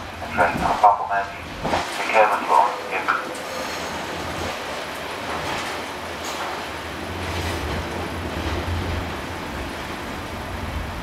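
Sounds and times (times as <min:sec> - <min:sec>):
diesel railbus low drone: 0:00.0 - 0:11.0
running gear rumbling: 0:00.0 - 0:11.0.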